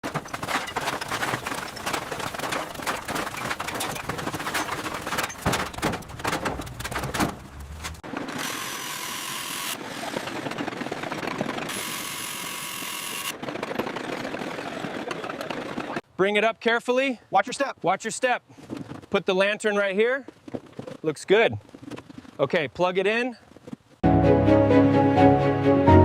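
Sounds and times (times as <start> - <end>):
knocking and clattering: 0.0 - 8.2.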